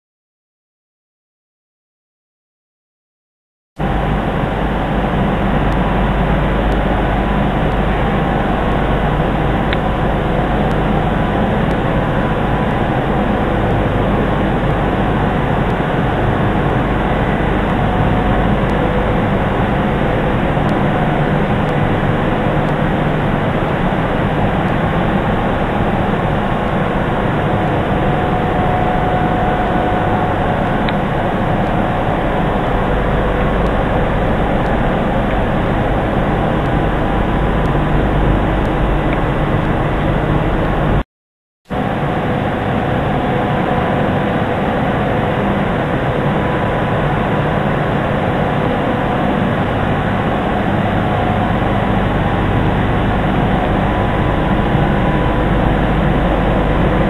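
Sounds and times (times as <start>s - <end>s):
milling machine running: 3.8s - 40.9s.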